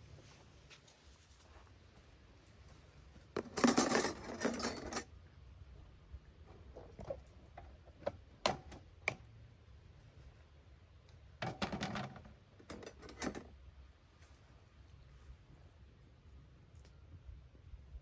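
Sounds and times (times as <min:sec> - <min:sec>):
cooking gear clattering: 0:03.4 - 0:05.0.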